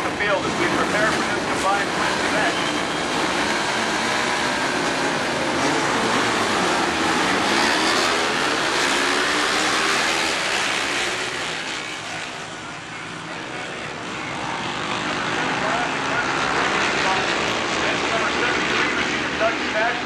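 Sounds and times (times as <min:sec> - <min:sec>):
racing motorcycles revving: 0:00.0 - 0:20.0.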